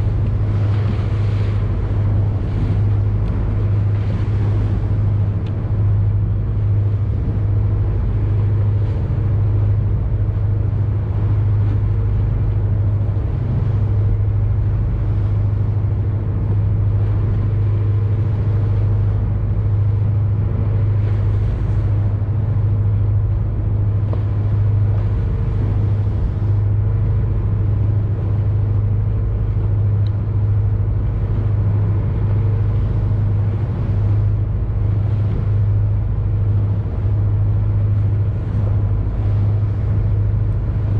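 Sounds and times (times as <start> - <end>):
boat engine droning: 0.0 - 40.9.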